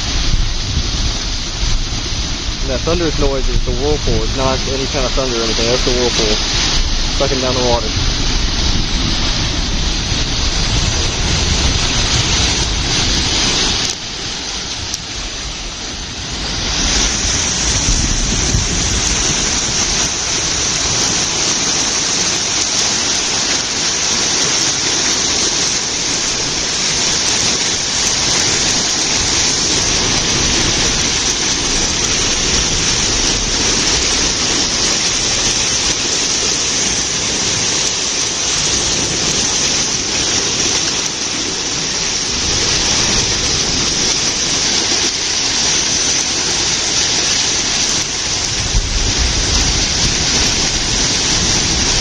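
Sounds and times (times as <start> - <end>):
whirlpool water rushing: 0.0 - 52.0.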